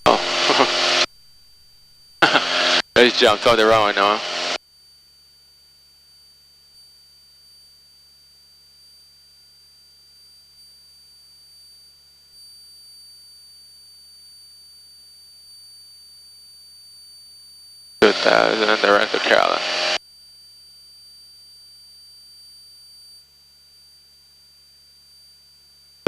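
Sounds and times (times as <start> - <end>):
high-pitched electronic tone: 0.0 - 1.1, 2.2 - 4.6, 18.0 - 20.0
low hum: 0.0 - 4.6, 18.0 - 20.0.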